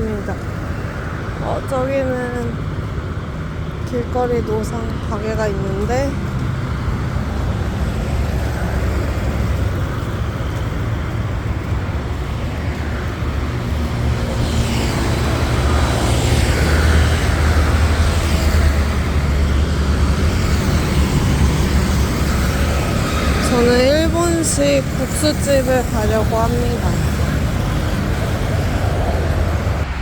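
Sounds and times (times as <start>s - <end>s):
road traffic rumble: 0.0s - 30.0s
vehicle passing close by: 5.9s - 30.0s.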